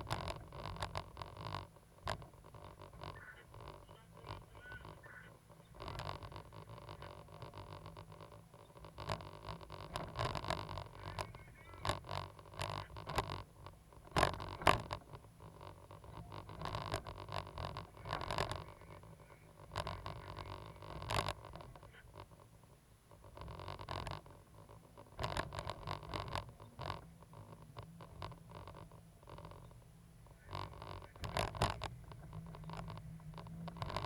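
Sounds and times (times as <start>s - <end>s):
excavator engine drone: 26.0s - 34.0s.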